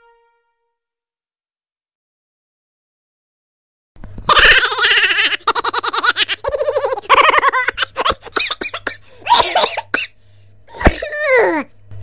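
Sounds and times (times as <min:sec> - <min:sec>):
person laughing and coughing: 0:06.4 - 0:11.1.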